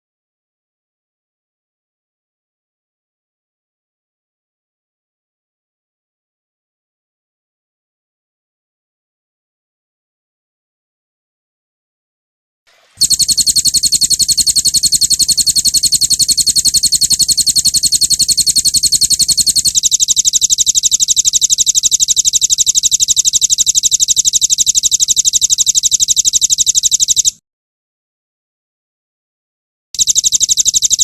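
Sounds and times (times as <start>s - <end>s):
songbird rapid trill: 13.0s - 27.3s.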